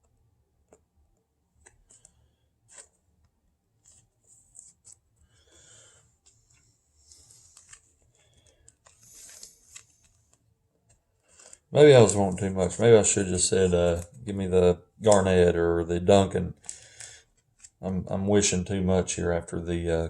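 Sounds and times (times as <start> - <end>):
trading cards clicking and rustling: 0.0 - 18.6
cards sliding rubs: 1.6 - 12.8, 16.6 - 17.9.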